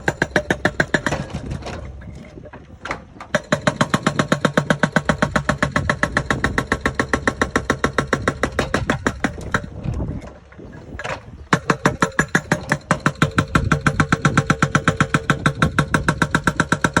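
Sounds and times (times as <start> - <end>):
diesel engine knocking: 0.0 - 1.6, 3.3 - 9.8, 11.5 - 17.0.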